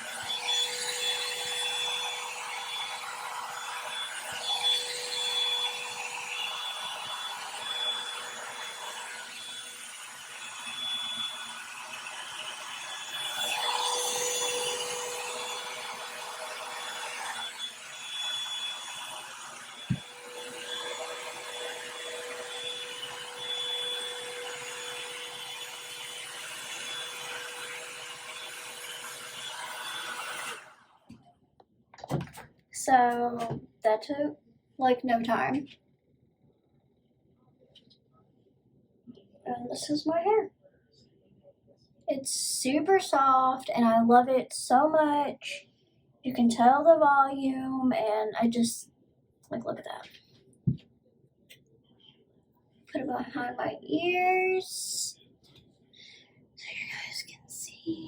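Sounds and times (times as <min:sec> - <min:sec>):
hair dryer brush running: 0:00.0 - 0:28.4.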